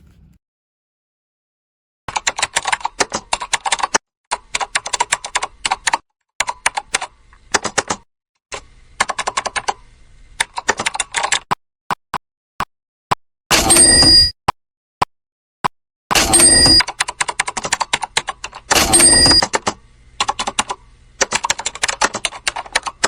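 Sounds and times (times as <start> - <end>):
keyboard typing clicks: 16.1 - 23.0.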